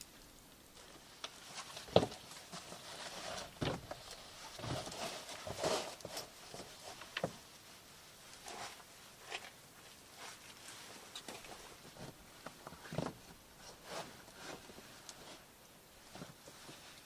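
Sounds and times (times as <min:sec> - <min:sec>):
rustling: 0:00.0 - 0:17.0
soft knocks and thumps: 0:03.6 - 0:04.0.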